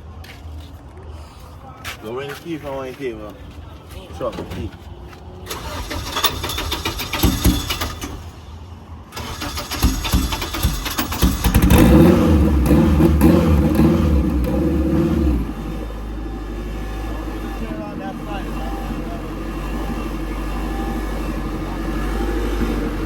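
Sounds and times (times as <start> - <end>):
car engine starting and running: 5.4 - 23.0.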